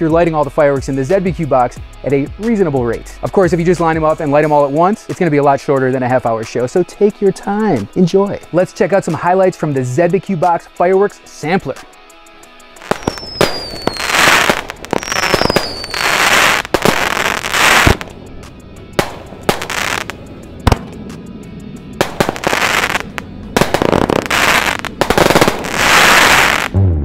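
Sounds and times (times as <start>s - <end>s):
firework crackle: 12.7s - 18.2s, 18.9s - 21.0s, 21.9s - 26.8s
fireworks bangs: 12.8s - 18.1s, 19.0s - 21.0s, 22.0s - 27.0s
falling firework whistle: 12.9s - 18.0s, 25.4s - 27.0s.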